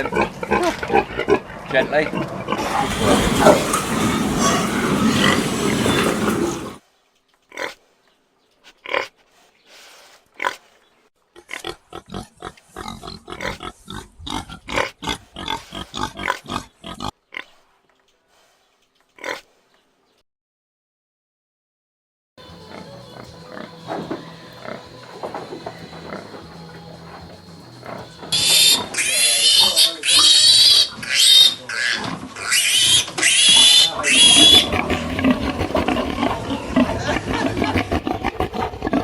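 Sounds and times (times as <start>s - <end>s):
pigs grunting: 0.0s - 6.8s, 8.6s - 9.2s, 11.4s - 17.6s, 19.2s - 19.5s, 22.5s - 39.0s.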